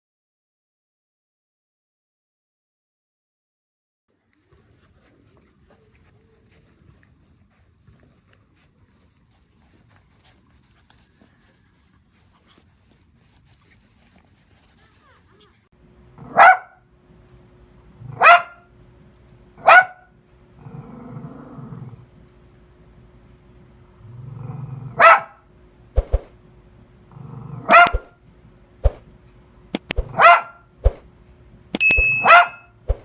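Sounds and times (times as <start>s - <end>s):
dog barking: 16.2s - 16.9s, 18.1s - 18.7s, 19.6s - 20.1s, 24.9s - 25.4s, 27.6s - 28.2s, 30.0s - 30.7s, 32.2s - 32.7s
dog growling: 18.0s - 18.2s, 20.6s - 22.1s, 23.8s - 25.2s, 27.0s - 28.1s
sharp clicks: 29.7s - 30.2s.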